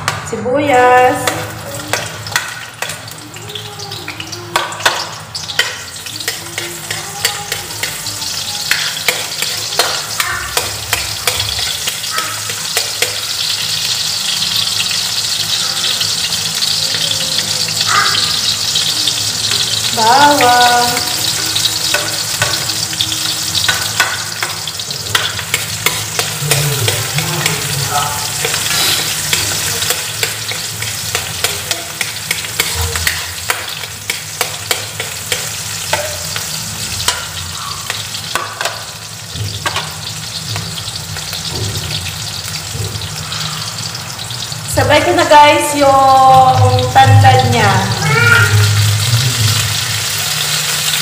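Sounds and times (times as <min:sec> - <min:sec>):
onion sizzling in hot oil: 0:00.0 - 0:51.0
spatula scraping a pan: 0:23.6 - 0:38.9.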